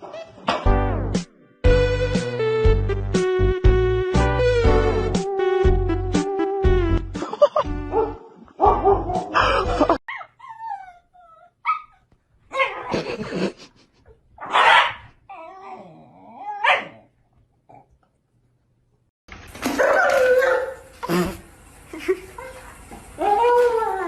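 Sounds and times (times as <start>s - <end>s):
upbeat music with a beat: 1.2s - 7.2s
dog crying: 10.0s - 12.9s.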